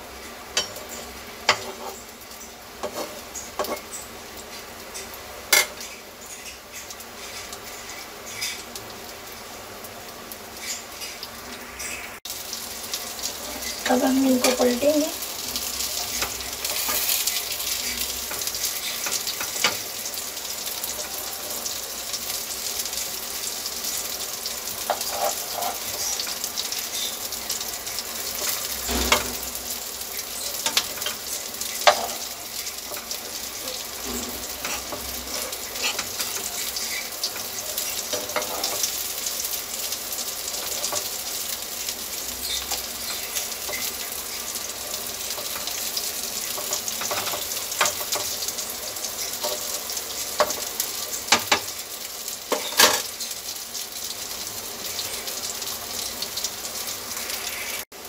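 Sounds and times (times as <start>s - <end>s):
patties sizzling in pan: 0.0s - 58.0s
spatula scraping pan: 1.4s - 2.0s, 2.8s - 3.9s, 16.1s - 19.9s, 24.8s - 26.4s, 30.4s - 39.0s
spatula knocking pan: 30.6s - 33.2s, 51.3s - 51.7s.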